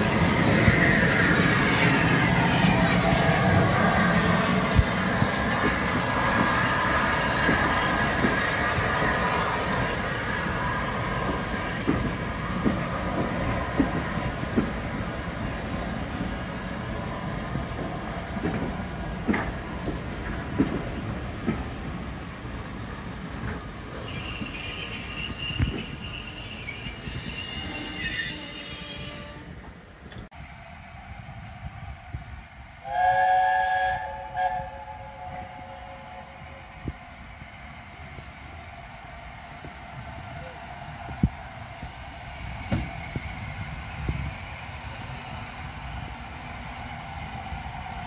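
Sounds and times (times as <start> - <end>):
high-pitched wheel squeal: 23.7 - 29.7
steam locomotive whistle: 24.1 - 29.6, 32.8 - 36.7.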